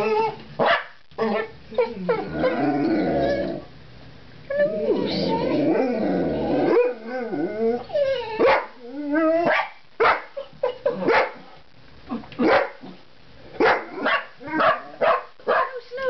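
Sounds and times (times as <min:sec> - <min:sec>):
dogs whining and yipping: 0:00.0 - 0:00.4, 0:01.2 - 0:03.6, 0:06.6 - 0:09.6
dogs barking: 0:00.6 - 0:01.6, 0:08.4 - 0:08.8, 0:09.4 - 0:11.4, 0:12.4 - 0:12.8, 0:13.6 - 0:15.8.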